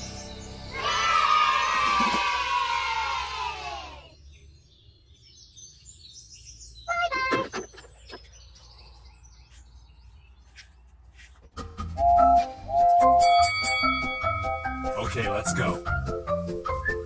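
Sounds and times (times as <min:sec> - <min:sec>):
small birds chirping: 0:00.0 - 0:01.8, 0:03.8 - 0:11.5.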